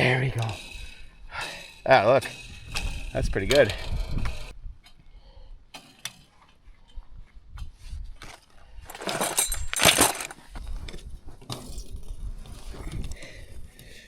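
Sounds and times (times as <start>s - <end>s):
metal clicking and clinking: 0.0s - 4.5s, 8.3s - 10.4s
wire scraping rattle: 0.0s - 5.0s, 7.6s - 13.8s.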